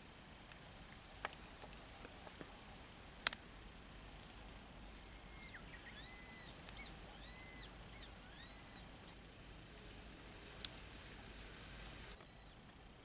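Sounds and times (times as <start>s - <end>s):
bird singing: 4.8s - 9.2s, 12.2s - 12.7s.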